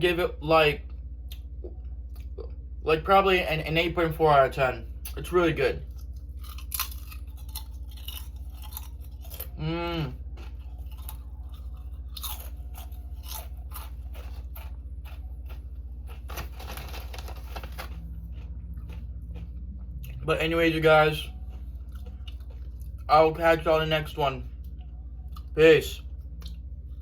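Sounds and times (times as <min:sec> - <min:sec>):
person chewing crisp chips: 0:05.0 - 0:27.0
person humming: 0:09.6 - 0:10.2.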